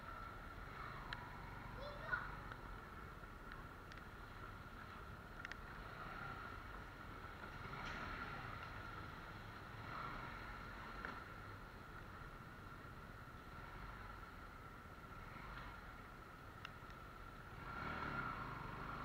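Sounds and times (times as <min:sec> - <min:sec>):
wind and road noise: 0:00.0 - 0:19.0
light clicks: 0:03.4 - 0:04.1, 0:05.3 - 0:05.7, 0:16.6 - 0:17.1.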